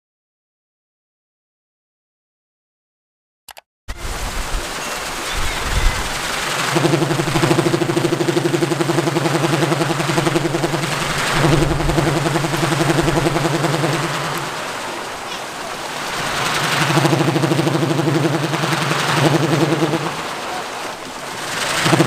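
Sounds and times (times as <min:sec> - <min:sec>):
wind noise: 0:03.9 - 0:08.2, 0:09.5 - 0:22.0
wooden propeller pulsing drone: 0:03.9 - 0:22.0.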